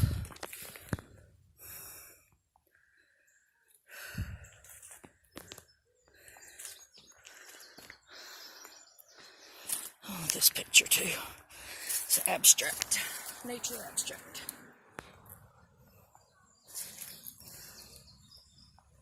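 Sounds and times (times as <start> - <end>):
person breathing hard: 0.0 - 3.2, 3.9 - 4.9, 6.0 - 10.2, 11.4 - 12.1.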